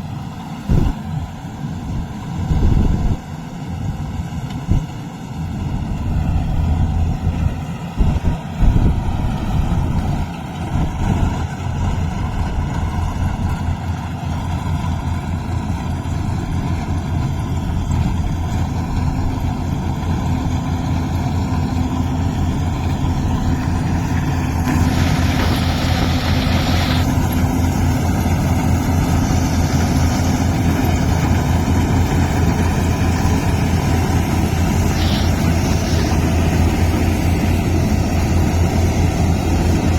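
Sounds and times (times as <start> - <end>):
harvester engine droning: 0.0 - 39.9
hissing rush: 21.7 - 39.9
higher hum: 21.9 - 39.9.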